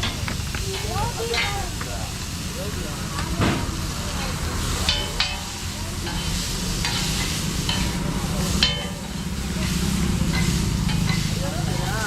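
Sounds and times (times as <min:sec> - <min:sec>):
food sizzling on a griddle: 0:00.0 - 0:12.0
spatula clinking on pan: 0:04.8 - 0:08.0, 0:08.6 - 0:09.3
metal spatula scraping: 0:04.8 - 0:11.8.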